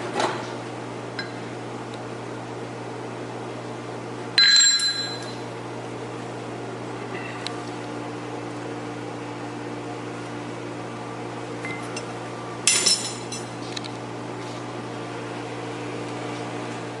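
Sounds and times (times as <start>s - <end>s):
sharp metallic clink: 4.4s - 5.4s.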